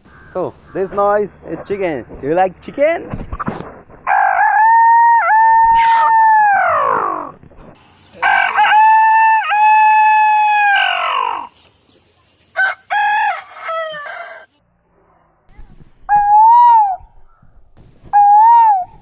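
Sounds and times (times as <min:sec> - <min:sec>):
man imitating rooster crow: 0:04.1 - 0:07.3, 0:08.2 - 0:11.5, 0:16.1 - 0:17.0, 0:18.2 - 0:19.0.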